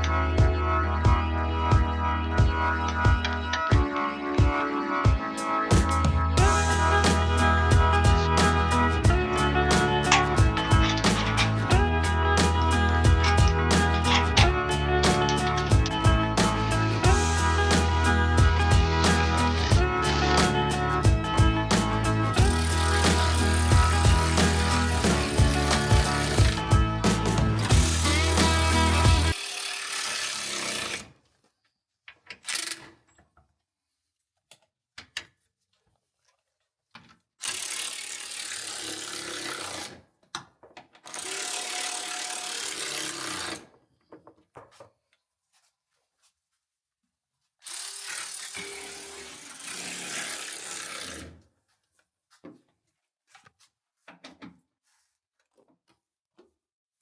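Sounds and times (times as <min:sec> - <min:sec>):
cordless ratchet running: 0:22.3 - 0:26.8, 0:27.6 - 0:31.0, 0:37.4 - 0:39.9, 0:41.1 - 0:43.6, 0:47.6 - 0:51.1.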